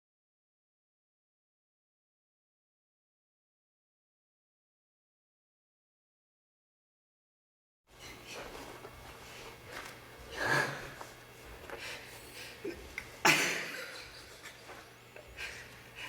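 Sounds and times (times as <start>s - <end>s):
steady low hum: 7.9s - 16.0s.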